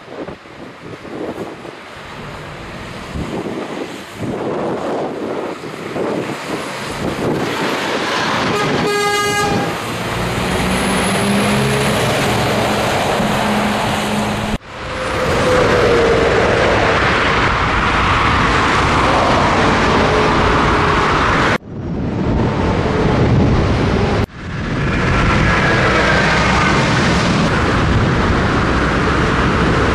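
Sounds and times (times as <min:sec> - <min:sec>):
truck road and wind noise: 0:00.0 - 0:29.9
vehicle horn toot: 0:08.5 - 0:09.8.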